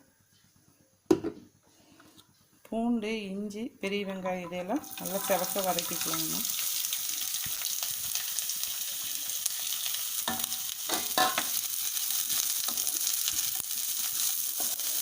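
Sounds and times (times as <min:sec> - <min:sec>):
spoon scraping a pan: 0:04.4 - 0:06.7, 0:09.6 - 0:11.6, 0:14.2 - 0:15.0
food sizzling in hot oil: 0:04.6 - 0:15.0.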